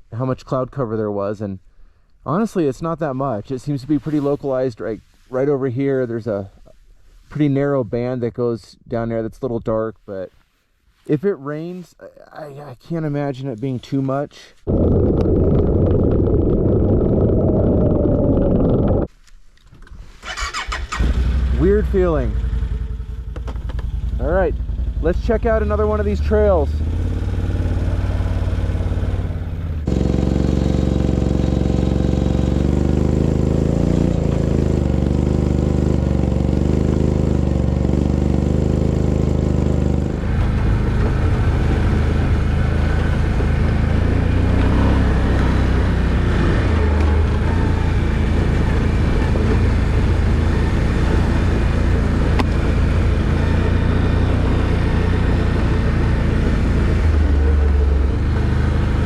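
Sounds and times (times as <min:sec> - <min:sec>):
off-road vehicle engine: 0:14.6 - 0:19.1, 0:19.7 - 0:59.0.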